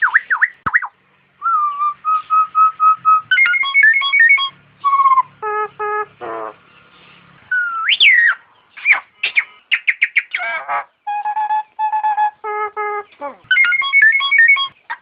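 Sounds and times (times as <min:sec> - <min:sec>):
bird whistling calls: 0:00.0 - 0:15.0.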